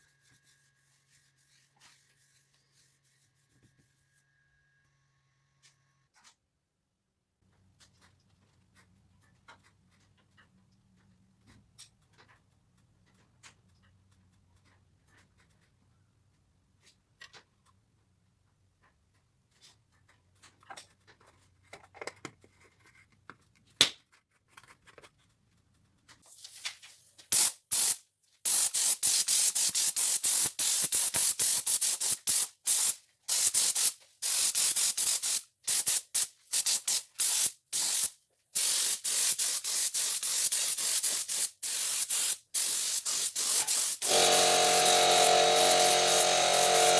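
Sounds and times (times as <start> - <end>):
pressurised spray hissing: 32.7 - 46.9.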